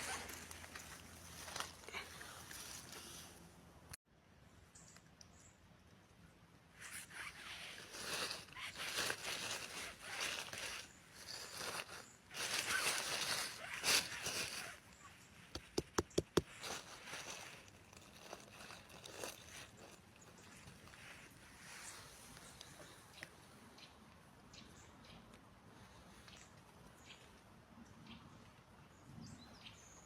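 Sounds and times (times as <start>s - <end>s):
rustling in dry leaf litter: 0.0s - 3.4s, 6.8s - 23.3s.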